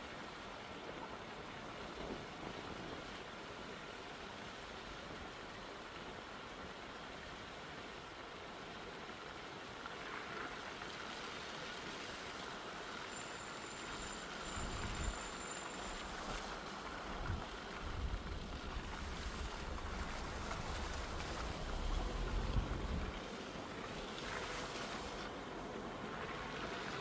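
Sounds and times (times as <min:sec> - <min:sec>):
wind buffeting microphone: 0:17.1 - 0:23.2.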